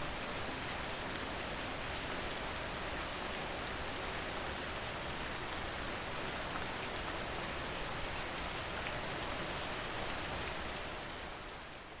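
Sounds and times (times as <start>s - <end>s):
steady rain hiss: 0.0s - 3.8s.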